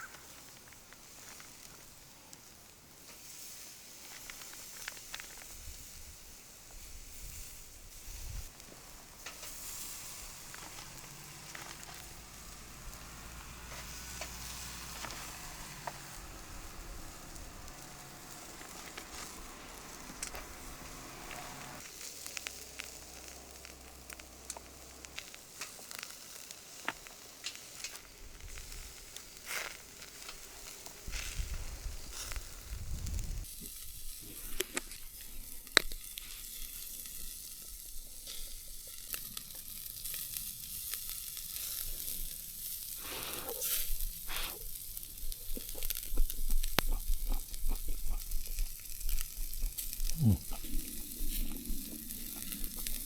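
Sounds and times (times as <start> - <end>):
pops and crackles: 0.0 - 5.8, 8.5 - 53.0
food sizzling in pan: 3.0 - 53.0.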